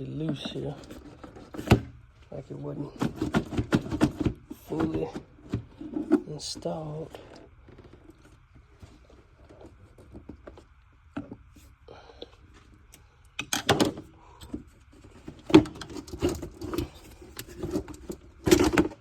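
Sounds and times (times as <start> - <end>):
clicks and knocks of car parts: 0.2 - 2.1, 2.9 - 6.3, 13.4 - 19.0.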